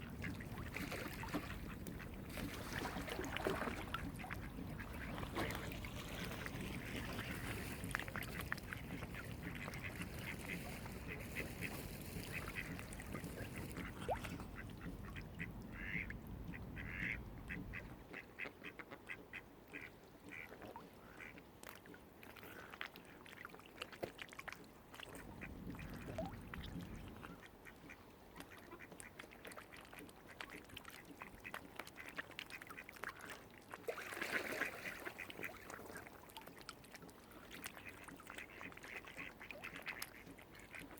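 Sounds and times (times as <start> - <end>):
waterfowl calling: 6.4 - 16.1, 16.8 - 21.4
low steady rumble: 12.3 - 18.0.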